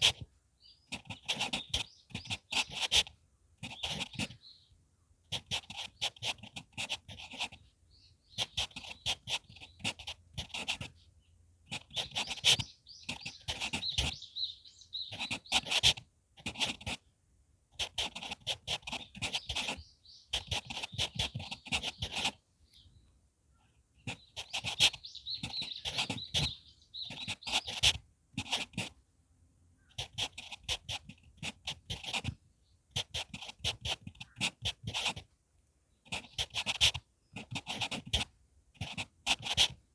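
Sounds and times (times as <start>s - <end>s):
pencil writing on paper: 0.0s - 0.2s, 0.9s - 4.4s, 5.3s - 7.7s, 8.3s - 11.0s, 11.7s - 14.2s, 15.0s - 17.0s, 17.8s - 22.4s, 24.0s - 29.0s, 29.8s - 35.3s, 36.0s - 39.8s.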